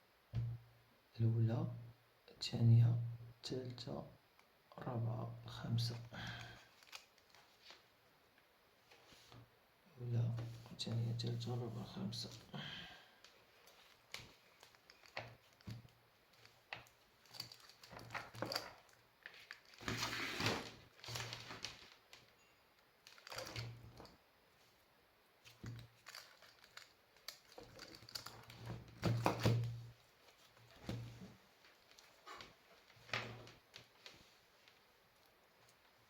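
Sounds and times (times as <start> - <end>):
clicks and knocks of handling tools: 25.5 - 29.8.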